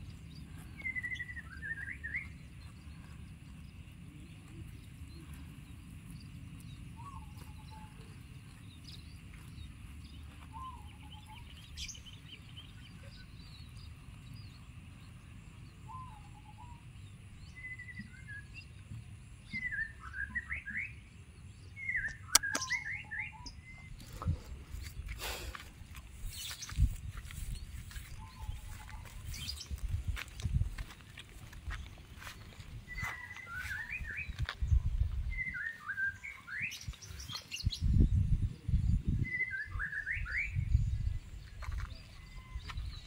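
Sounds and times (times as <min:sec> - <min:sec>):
rising bird chirps: 0:00.0 - 0:18.8, 0:21.7 - 0:24.3, 0:26.2 - 0:30.0, 0:31.8 - 0:43.0
bird calls: 0:00.0 - 0:38.0, 0:39.2 - 0:43.0
sharp click: 0:22.1 - 0:22.8.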